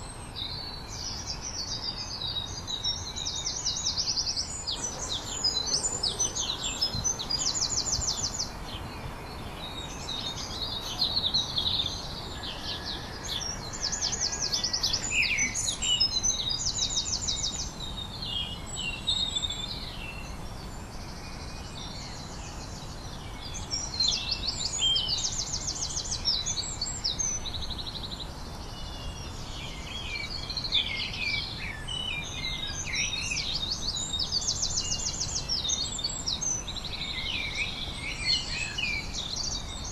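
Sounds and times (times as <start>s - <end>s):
songbirds singing: 1.6s - 26.5s, 28.8s - 39.9s
low background hiss: 4.7s - 15.4s.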